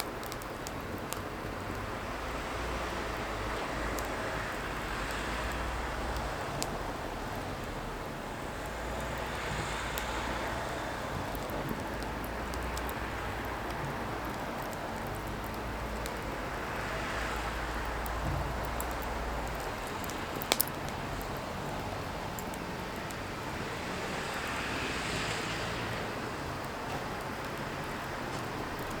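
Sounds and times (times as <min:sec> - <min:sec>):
fire hissing: 0:00.0 - 0:29.0
wood crackling: 0:00.0 - 0:29.0
sharp pop of burning wood: 0:17.9 - 0:21.0.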